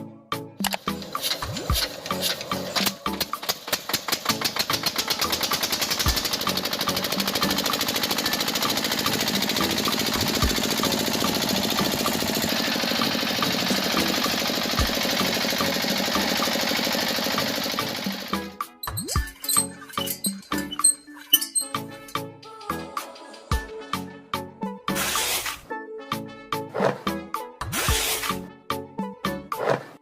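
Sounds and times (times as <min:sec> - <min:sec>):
small motor chattering: 0:00.7 - 0:23.4.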